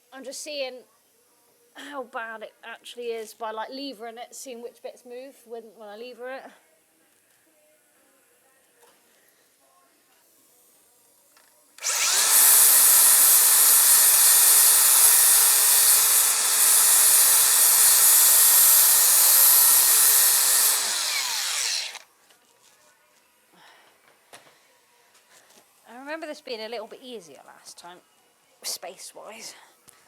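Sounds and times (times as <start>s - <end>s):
power grinder on steel: 11.8s - 22.0s.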